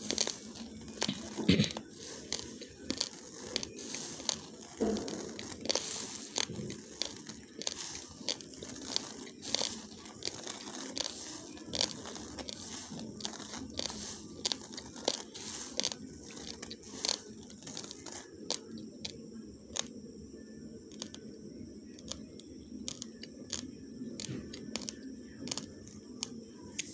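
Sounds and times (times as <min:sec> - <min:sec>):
chewing crunchy rice: 0:00.0 - 0:19.9, 0:20.9 - 0:21.2, 0:22.0 - 0:23.6, 0:24.2 - 0:26.9.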